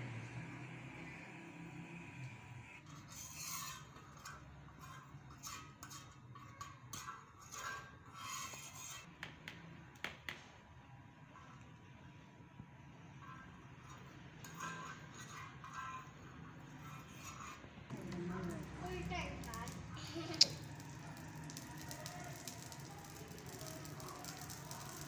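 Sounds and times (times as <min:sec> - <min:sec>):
spoon scraping an iron griddle: 0:02.6 - 0:09.2, 0:13.0 - 0:22.5.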